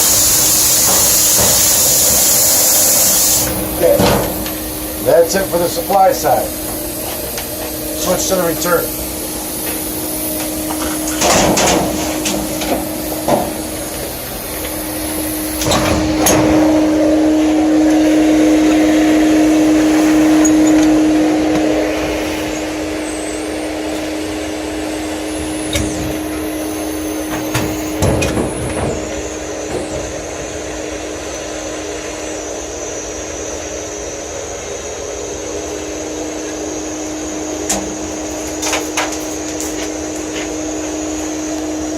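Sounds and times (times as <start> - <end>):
vacuum humming: 0.0 - 41.9
knocks and bangs in ductwork: 27.3 - 30.6.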